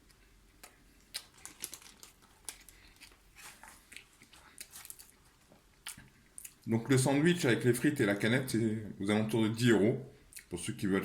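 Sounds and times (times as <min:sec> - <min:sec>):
sandwich bread crackling: 0:00.0 - 0:06.1.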